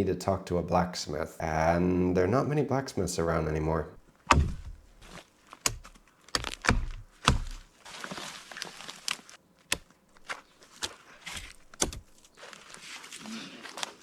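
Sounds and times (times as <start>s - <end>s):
hatchet chopping wood: 4.3s - 7.7s, 9.7s - 12.2s.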